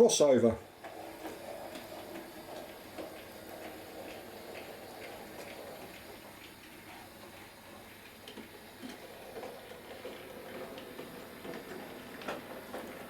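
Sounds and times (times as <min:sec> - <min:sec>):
wheels clicking over rail joints: 0:08.4 - 0:13.0.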